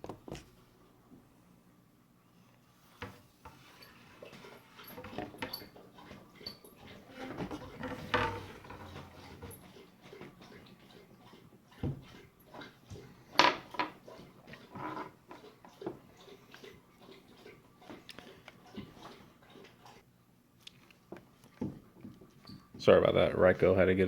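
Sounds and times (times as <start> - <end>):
dog lapping water: 9.0 - 13.3, 13.9 - 20.0.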